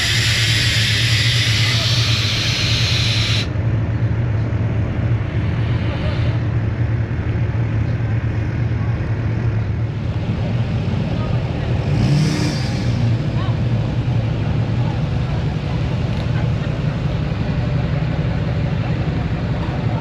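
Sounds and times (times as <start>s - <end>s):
loud hiss: 0.0s - 3.5s
truck engine rumbling: 0.0s - 20.0s.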